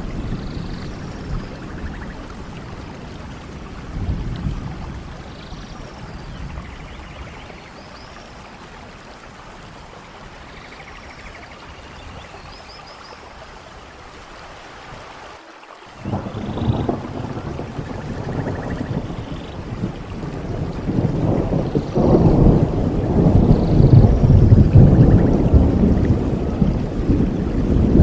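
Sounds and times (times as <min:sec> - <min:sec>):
thunder rumble: 0:00.0 - 0:07.6, 0:16.0 - 0:28.0
steady rain: 0:00.0 - 0:28.0.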